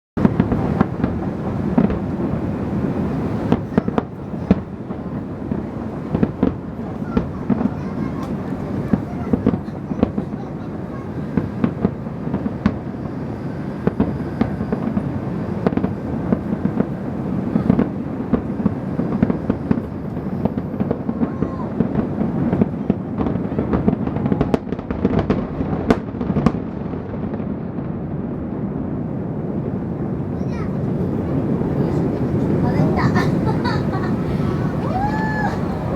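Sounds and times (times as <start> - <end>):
fireworks bangs: 0.2 - 35.9
low rumble of fireworks: 0.2 - 35.9.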